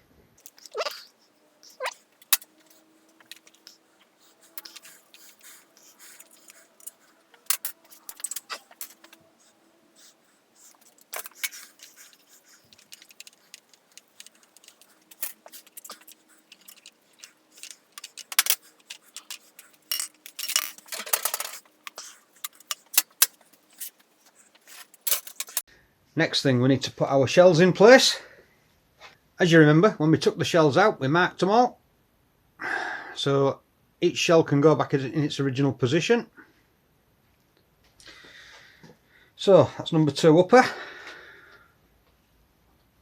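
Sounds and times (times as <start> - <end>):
small metal parts clinking: 0.4 - 25.6.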